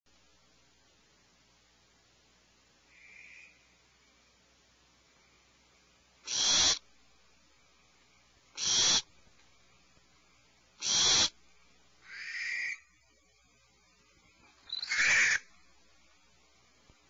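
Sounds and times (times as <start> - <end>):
faint owl call: 2.9 - 4.2, 6.2 - 6.9, 8.5 - 9.1, 10.8 - 11.4, 12.0 - 13.6, 14.5 - 15.8
owl screeching: 6.3 - 6.8, 8.6 - 9.1, 10.8 - 11.4, 12.0 - 12.8, 14.7 - 15.5.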